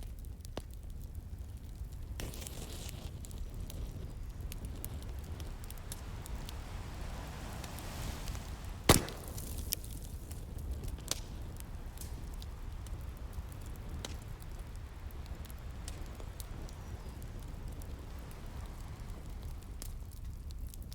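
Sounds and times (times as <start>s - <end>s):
wood fire crackling and popping: 0.0s - 20.9s
sea waves rumbling: 4.7s - 10.3s, 11.7s - 19.8s.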